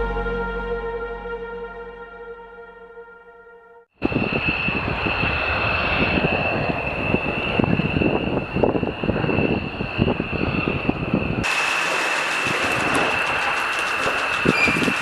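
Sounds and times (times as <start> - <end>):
jet engine whine and roar: 4.0 - 15.0.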